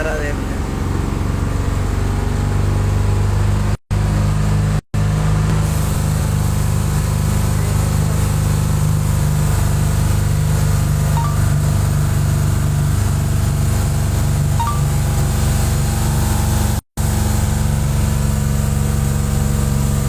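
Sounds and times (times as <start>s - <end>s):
truck engine humming: 10.7s - 16.2s.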